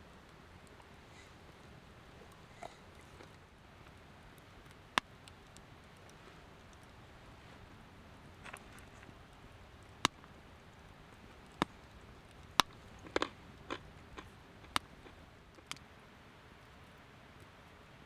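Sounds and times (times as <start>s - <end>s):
faint steady background noise: 0.0s - 18.0s
sharp cracks and clicks: 9.8s - 15.8s.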